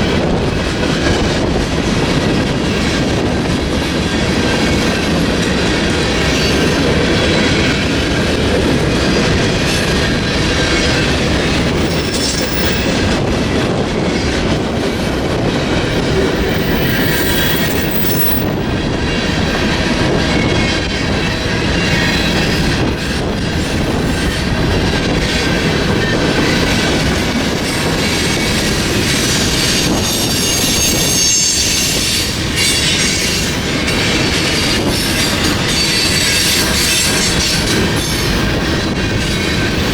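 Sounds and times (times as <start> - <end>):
train wheels rumbling on rails: 0.0 - 39.9
high-pitched wheel noise: 16.0 - 18.8.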